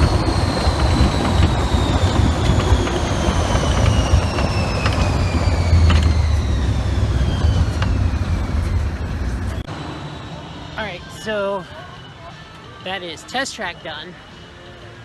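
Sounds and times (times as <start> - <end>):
ride vehicle low rumble: 0.0 - 9.7
high whine falling in pitch: 0.0 - 11.4.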